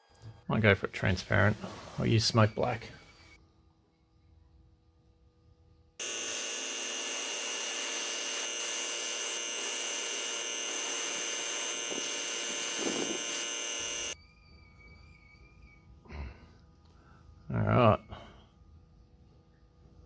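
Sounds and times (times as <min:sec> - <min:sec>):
airbrush compressor running: 0:06.0 - 0:14.2
airbrush spraying hiss: 0:06.2 - 0:14.2.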